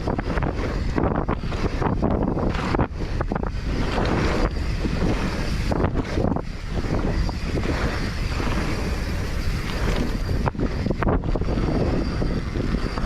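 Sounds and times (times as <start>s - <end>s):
wind on microphone: 0.0s - 13.0s
bike tyre noise: 1.0s - 10.7s.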